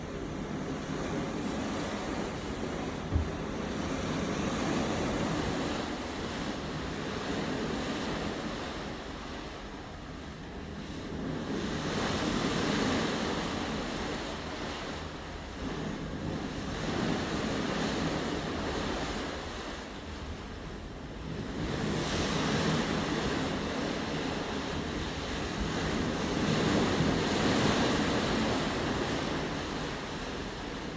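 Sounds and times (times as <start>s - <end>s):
wind buffeting microphone: 0.0s - 7.7s
water rushing alongside boat: 0.0s - 30.9s
short knock: 3.1s - 3.6s.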